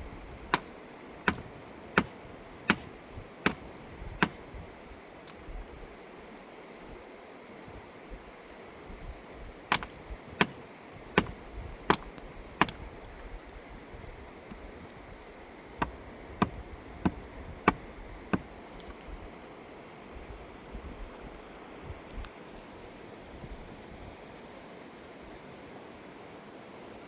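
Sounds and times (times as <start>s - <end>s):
sharp knocks: 0.5s - 0.7s, 1.3s - 2.1s, 2.7s - 2.9s, 3.5s - 4.4s, 9.7s - 10.6s, 11.2s - 12.8s, 15.8s - 18.9s.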